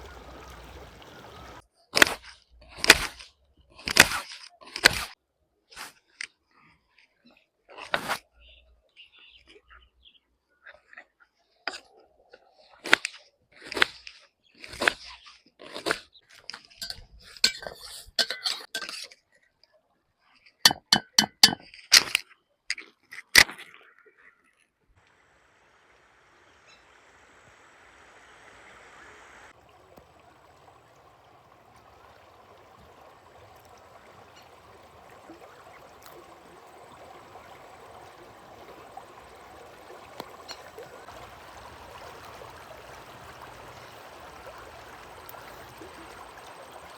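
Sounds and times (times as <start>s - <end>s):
river flowing: 0.0s - 1.6s, 25.1s - 46.9s.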